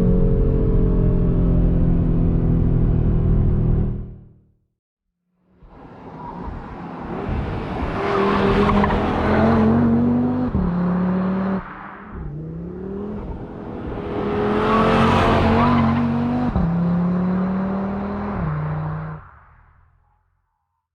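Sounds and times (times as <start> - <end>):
car engine accelerating hard: 5.8 - 19.2.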